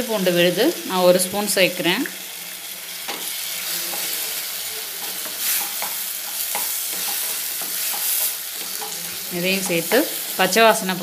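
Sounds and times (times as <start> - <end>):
onions and tomatoes sizzling: 0.0 - 11.0
spatula scraping and knocking pan: 4.9 - 10.6.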